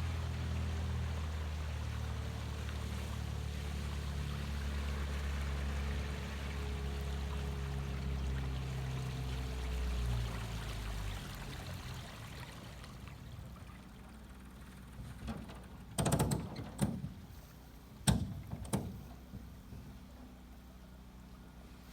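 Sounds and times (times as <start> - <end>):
water sounds: 0.0 - 16.0
outboard motor running: 0.0 - 21.9.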